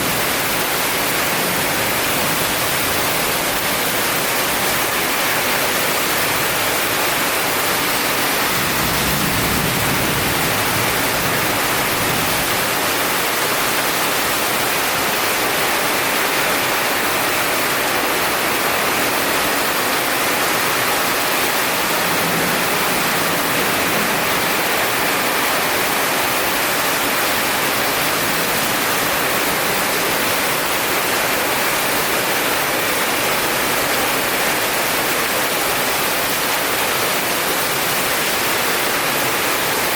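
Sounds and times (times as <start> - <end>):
heavy rain falling: 0.0 - 39.9
distant thunder rumble: 8.4 - 13.1.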